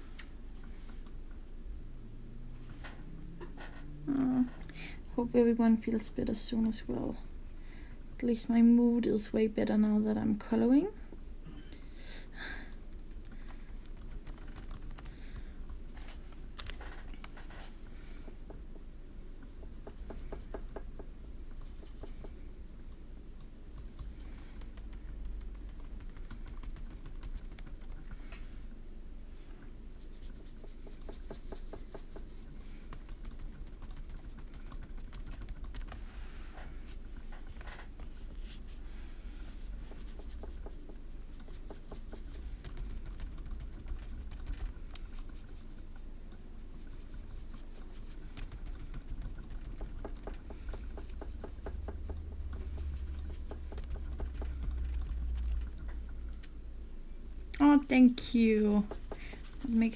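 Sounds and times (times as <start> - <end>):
steady low hum: 0.0 - 59.9
pencil scratching on paper: 29.9 - 35.2, 38.1 - 44.4, 46.7 - 55.8, 57.6 - 59.9.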